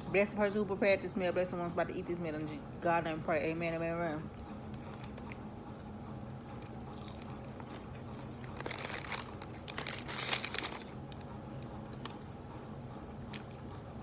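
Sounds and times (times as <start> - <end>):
low steady hum: 0.0 - 14.0
food wrapping crinkling: 6.6 - 12.3.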